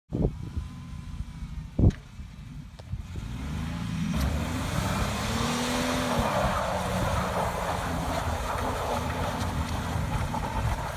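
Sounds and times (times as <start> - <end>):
truck engine revving: 3.0 - 10.9.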